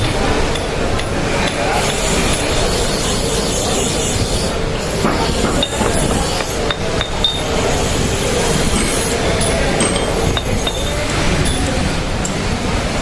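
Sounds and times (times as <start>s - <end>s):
workshop noise: 0.0s - 13.0s
light metallic clinks: 8.7s - 12.4s.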